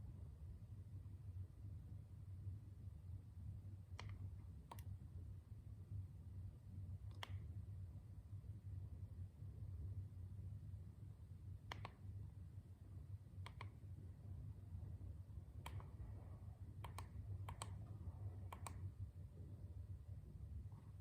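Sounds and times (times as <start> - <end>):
faint low hum: 0.0 - 21.0
small sharp clicks: 3.9 - 4.9, 7.1 - 7.5, 11.7 - 12.0, 13.4 - 13.8, 15.6 - 16.0, 16.8 - 17.8, 18.5 - 18.9.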